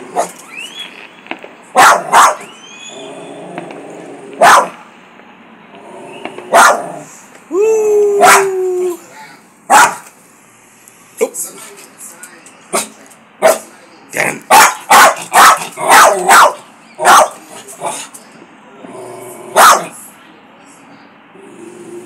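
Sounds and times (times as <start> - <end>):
dog barking: 0.1 - 0.4, 1.8 - 2.5, 4.4 - 4.9, 6.5 - 7.0, 8.2 - 8.5, 9.7 - 10.1, 12.8 - 13.7, 14.5 - 17.4, 19.6 - 20.0
dog howling bark: 1.8 - 3.0, 4.4 - 4.8, 6.5 - 7.0, 8.1 - 8.8, 14.5 - 17.4, 19.6 - 19.9.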